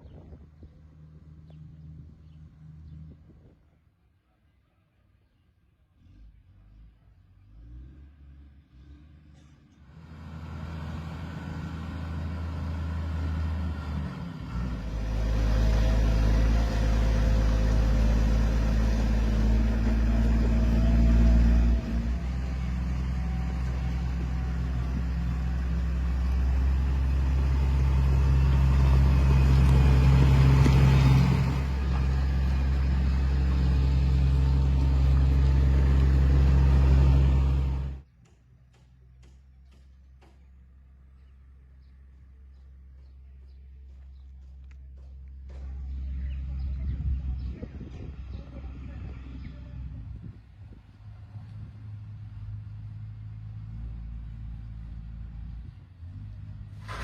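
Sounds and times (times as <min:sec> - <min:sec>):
heavy machinery engine running: 0:10.0 - 0:38.0.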